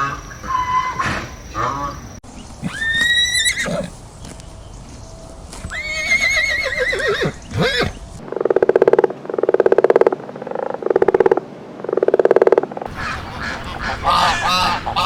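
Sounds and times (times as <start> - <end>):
horse whinnying: 2.6 - 4.0, 5.7 - 8.0.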